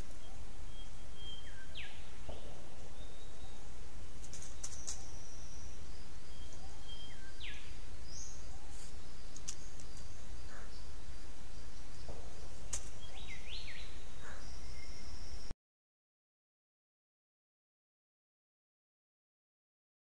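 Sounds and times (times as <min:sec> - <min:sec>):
bird whistles and upsweeping notes: 0:00.0 - 0:15.5
faint bird chirps: 0:00.0 - 0:15.6.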